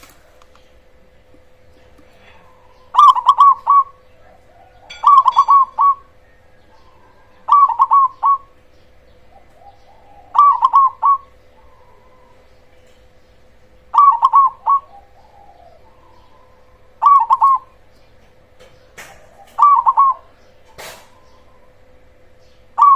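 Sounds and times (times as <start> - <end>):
faint steady hum: 0.0 - 22.9
dove cooing: 1.8 - 13.0, 13.7 - 17.8, 19.0 - 22.2.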